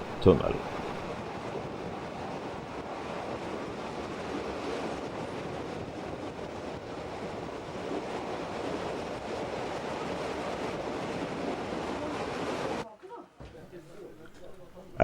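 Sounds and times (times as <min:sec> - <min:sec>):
steam train running: 0:00.0 - 0:01.1.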